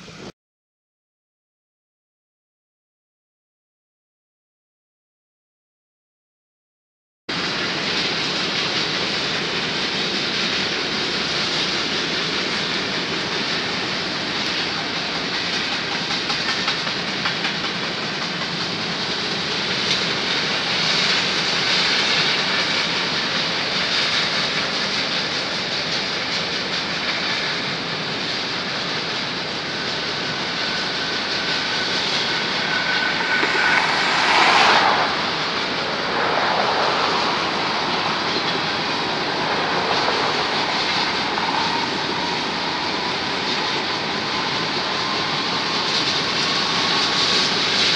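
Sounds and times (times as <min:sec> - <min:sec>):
freight train wheels on rails: 0:07.3 - 0:47.9
high wheel squeal: 0:28.9 - 0:47.9.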